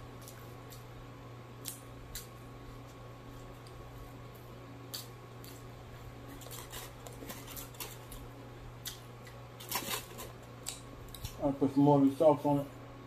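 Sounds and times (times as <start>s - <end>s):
person chewing with wet clicks: 0.1s - 9.4s, 10.5s - 11.4s.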